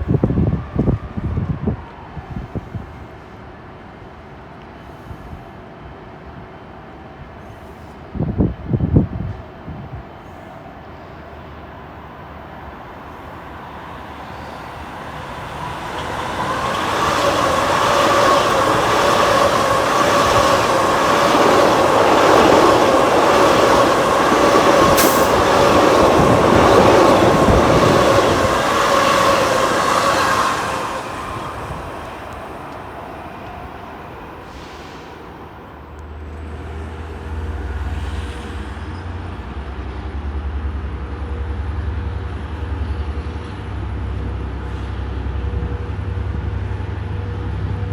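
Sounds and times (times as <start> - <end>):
train passing: 0.0 - 47.9
wheels rumbling: 12.3 - 33.6.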